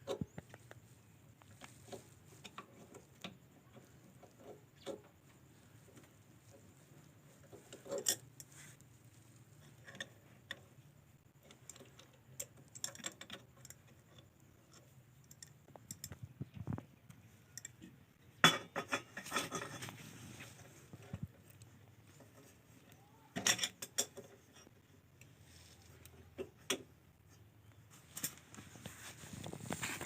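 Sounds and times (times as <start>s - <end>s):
metallic clicks of small parts: 9.6s - 19.9s, 21.0s - 26.9s.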